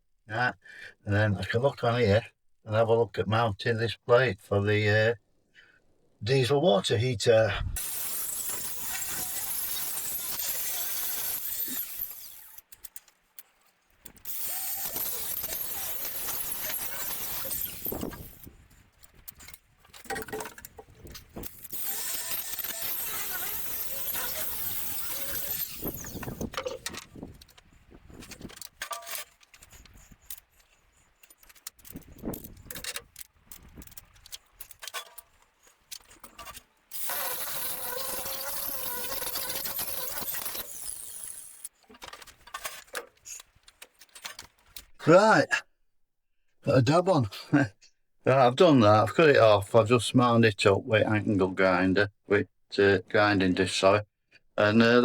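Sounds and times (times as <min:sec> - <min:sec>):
angle grinder cutting steel: 0:07.8 - 0:13.0, 0:14.0 - 0:18.6, 0:21.3 - 0:27.6, 0:36.2 - 0:42.1.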